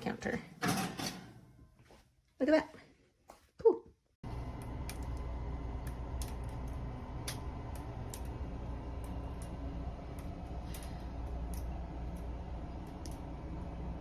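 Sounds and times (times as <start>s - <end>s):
low hum: 4.2s - 14.0s.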